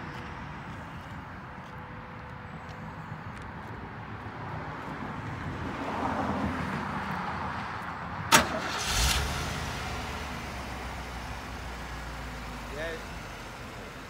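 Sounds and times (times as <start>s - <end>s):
car engine starting and idling: 8.3s - 14.0s.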